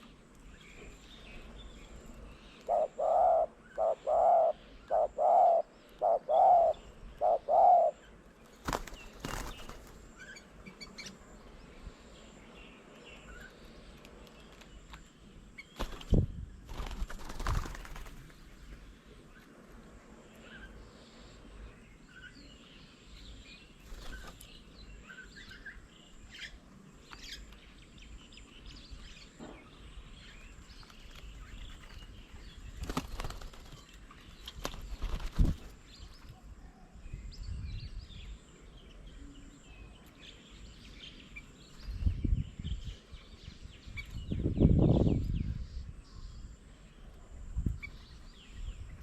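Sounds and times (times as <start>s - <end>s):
small birds chirping: 0.0s - 49.0s
wings fluttering: 8.4s - 10.4s, 14.1s - 18.6s, 23.8s - 24.5s, 30.7s - 32.1s, 32.7s - 36.3s.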